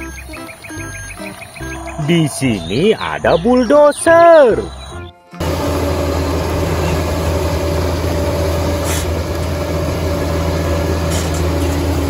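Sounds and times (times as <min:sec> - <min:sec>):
bulldozer diesel engine droning: 0:00.0 - 0:12.0
blade pushing rock and soil: 0:05.6 - 0:12.0.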